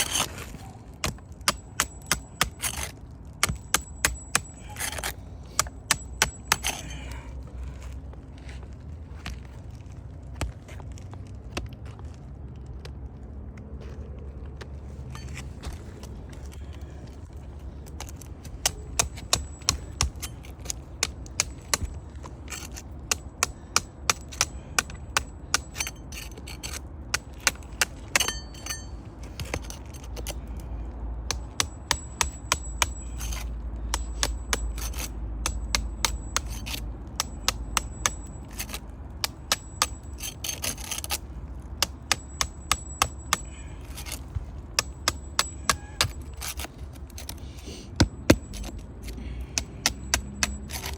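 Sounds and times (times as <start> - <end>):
hand tools tapping shingles: 0.0 - 7.2, 17.8 - 30.6, 31.3 - 50.9
scraping on shingles: 0.0 - 11.2, 31.3 - 50.9.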